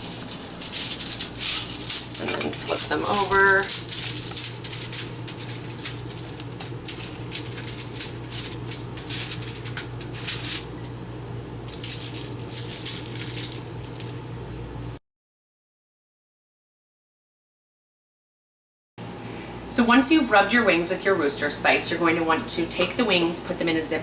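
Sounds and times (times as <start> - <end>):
spice rattling in a jar: 0.0 - 10.8, 11.7 - 14.3
low electrical hum: 0.0 - 15.0, 19.0 - 24.0.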